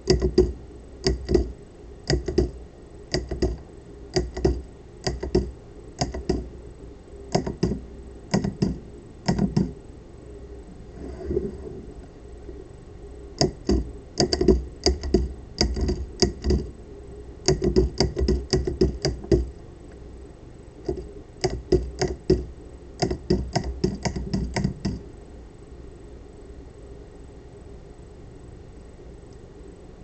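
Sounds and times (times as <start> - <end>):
solenoid clicking rapidly: 0.0 - 1.5, 2.1 - 6.5, 7.3 - 9.8, 13.4 - 16.7, 17.4 - 19.5, 20.8 - 25.0.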